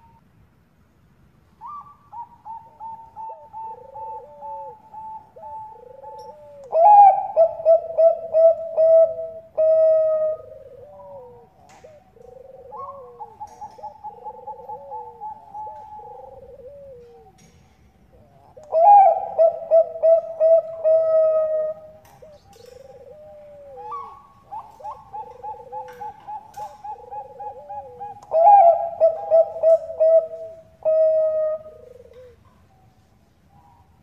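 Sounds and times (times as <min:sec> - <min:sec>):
doves cooing: 0:01.6 - 0:34.0.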